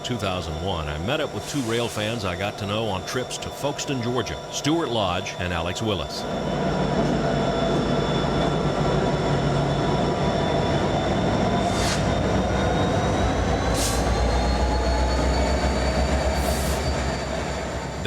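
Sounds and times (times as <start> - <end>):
diesel locomotive drone: 0.0 - 18.0
freight train rumble: 0.0 - 18.0
train wheels squealing on rails: 0.0 - 18.0
short hisses: 11.7 - 12.1.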